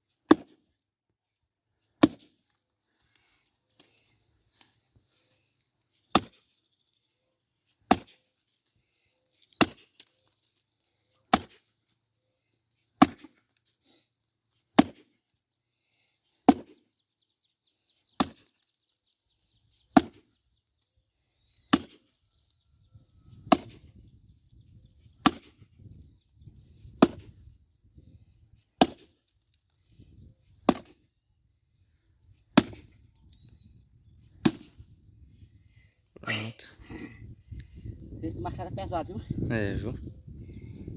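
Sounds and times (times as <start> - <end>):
axe chopping into log: 0.3 - 0.6, 2.0 - 2.4, 6.1 - 6.4, 7.9 - 8.2, 9.6 - 10.1, 11.3 - 11.6, 13.0 - 13.4, 14.8 - 15.2, 16.4 - 16.8, 18.2 - 18.5, 19.9 - 20.3, 21.7 - 22.1, 23.4 - 23.9, 25.2 - 25.6, 26.8 - 27.4, 28.8 - 29.2, 30.6 - 31.0, 32.5 - 33.0, 34.4 - 34.8.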